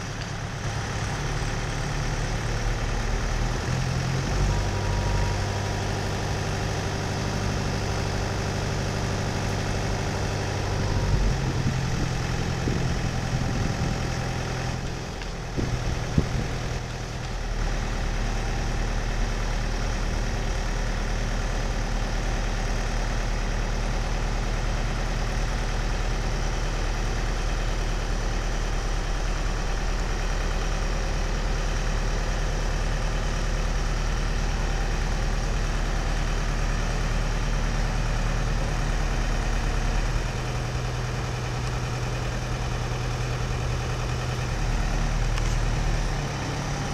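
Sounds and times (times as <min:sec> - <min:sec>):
diesel engine running: 0:00.0 - 0:46.9
engine knock: 0:00.2 - 0:46.9.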